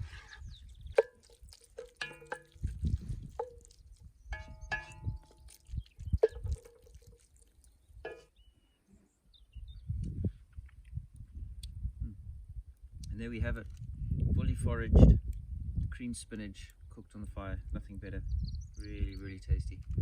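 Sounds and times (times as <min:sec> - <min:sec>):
utensil clinking on metal pan: 0:01.0 - 0:03.8, 0:04.4 - 0:07.4, 0:08.1 - 0:08.3.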